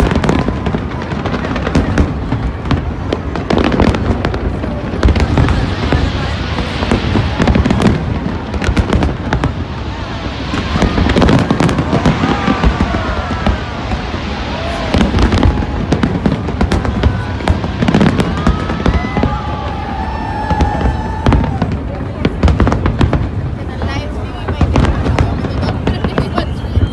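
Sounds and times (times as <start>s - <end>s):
fireworks bangs and crackling: 0.0s - 26.9s.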